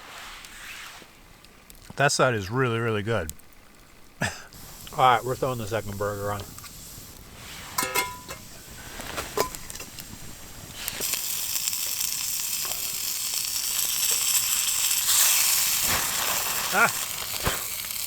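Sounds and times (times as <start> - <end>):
burger patty sizzling in pan: 4.2 - 18.0.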